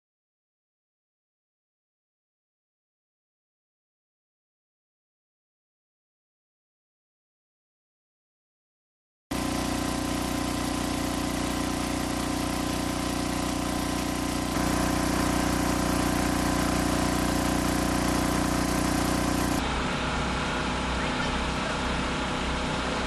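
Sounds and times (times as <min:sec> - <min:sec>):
engine idling: 0:09.3 - 0:19.6.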